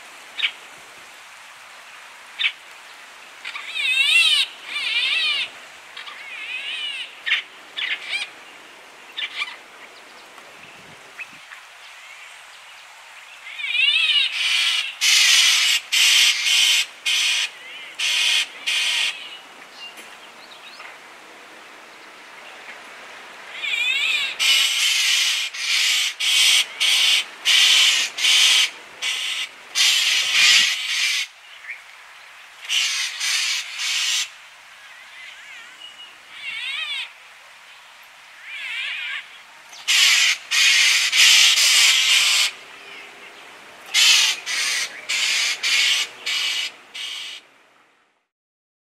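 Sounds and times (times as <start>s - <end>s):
birds calling in rasping bursts: 11.2s - 20.8s, 23.5s - 31.8s, 32.4s - 37.2s, 37.8s - 47.4s.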